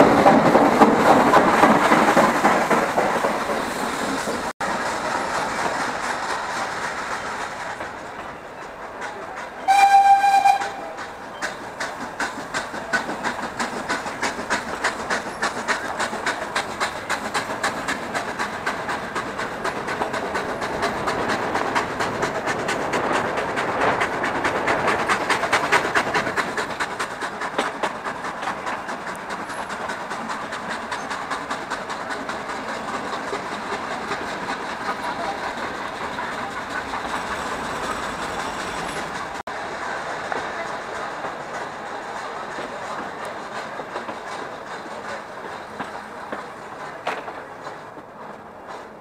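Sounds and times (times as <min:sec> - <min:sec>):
train wheels clattering over rail joints: 0:00.0 - 0:49.0.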